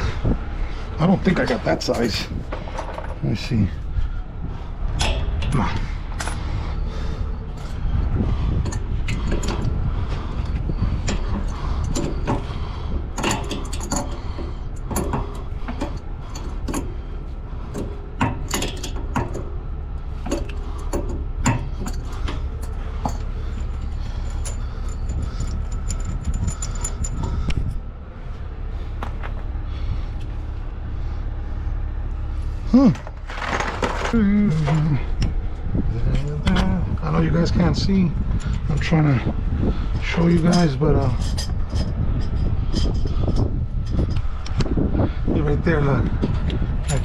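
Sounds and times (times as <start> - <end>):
low engine rumble: 0.0 - 47.0
metal tools clinking: 20.2 - 27.5, 32.9 - 34.2.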